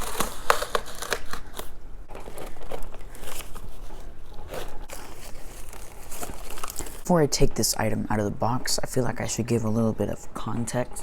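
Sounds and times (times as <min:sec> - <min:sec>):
packaging crinkling and crackling: 0:00.0 - 0:07.1.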